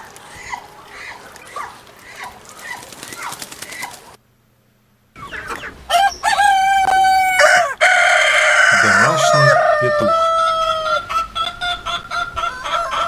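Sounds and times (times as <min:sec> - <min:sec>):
ducks peeping: 0:00.0 - 0:04.2, 0:05.2 - 0:13.0
rooster crowing: 0:05.9 - 0:13.0.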